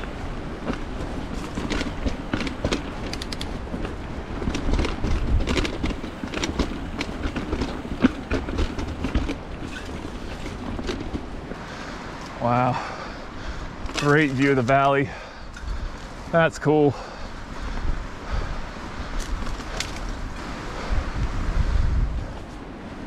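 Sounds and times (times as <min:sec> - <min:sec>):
mountain bike rattling on rocks: 0:00.0 - 0:11.9, 0:13.4 - 0:16.0, 0:19.0 - 0:20.9.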